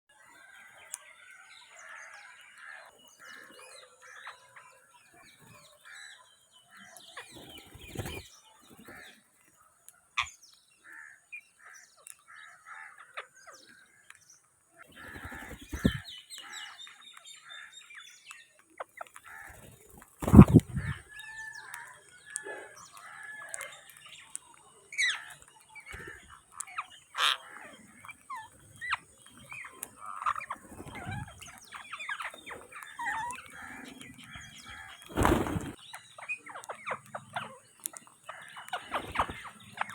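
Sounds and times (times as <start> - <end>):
parakeets chattering and calling: 14.9 - 17.7, 19.2 - 21.2, 22.8 - 39.9.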